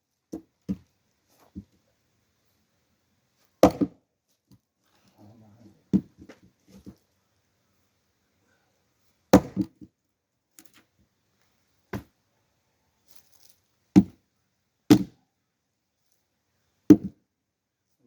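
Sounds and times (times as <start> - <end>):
axe splitting firewood: 3.6 - 4.0, 5.9 - 6.9, 9.3 - 9.9, 14.0 - 14.2, 14.9 - 15.2, 16.9 - 17.2.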